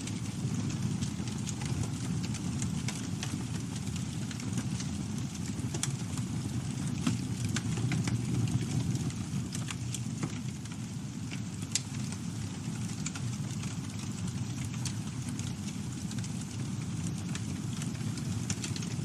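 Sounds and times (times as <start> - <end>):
low rumble of flames: 0.0 - 19.0
wood crackling and popping: 0.0 - 19.0.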